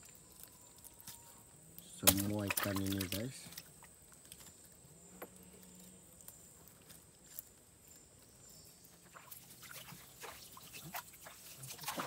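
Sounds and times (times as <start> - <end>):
wet net rustling and ticking: 0.0 - 4.8, 6.1 - 12.0
water dripping and splashing: 1.8 - 4.5, 9.0 - 12.0.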